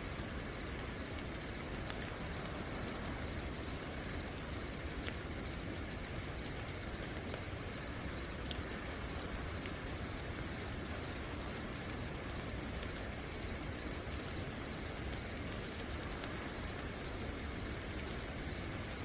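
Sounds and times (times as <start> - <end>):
crickets chirping: 0.0 - 19.0
steady rain falling: 0.0 - 19.0
single raindrop ticks: 0.2 - 3.1, 4.9 - 5.6, 6.3 - 9.8.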